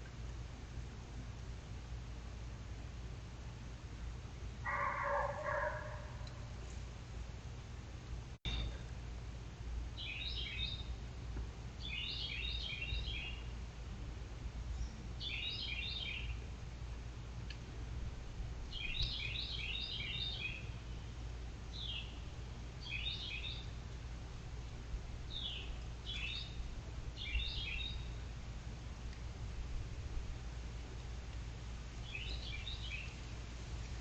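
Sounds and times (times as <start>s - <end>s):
steady low rumble: 0.0s - 34.0s
songbird chirping: 4.7s - 6.8s, 8.5s - 9.0s, 9.9s - 11.1s, 11.8s - 13.7s, 14.6s - 16.5s, 18.7s - 24.2s, 25.3s - 28.4s, 30.8s - 34.0s.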